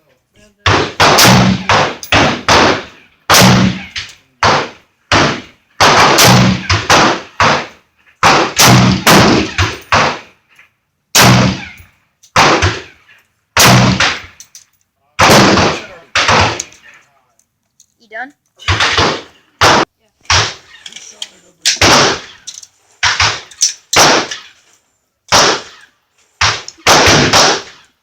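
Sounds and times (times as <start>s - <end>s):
rifle shots with echo: 0.6s - 10.4s, 11.1s - 11.8s, 12.4s - 13.0s, 13.6s - 14.4s, 15.2s - 16.8s, 18.6s - 20.7s, 21.7s - 24.5s, 25.3s - 27.9s.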